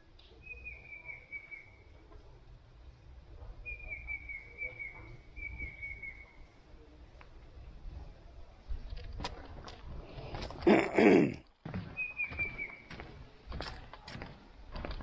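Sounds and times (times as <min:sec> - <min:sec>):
bird trilling whistle call: 0:03.7 - 0:06.3.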